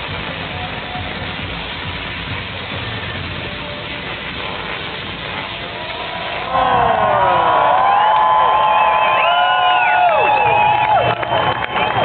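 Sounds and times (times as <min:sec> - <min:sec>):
crowd cheering and whooping: 0:05.7 - 0:12.0.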